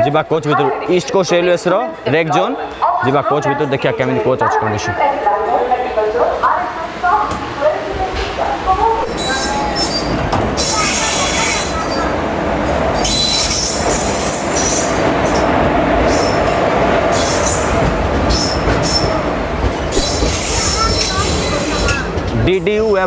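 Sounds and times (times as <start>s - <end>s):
train wheels rumbling on rail: 6.9s - 23.0s
high wheel squeals: 9.1s - 12.1s, 13.0s - 15.5s.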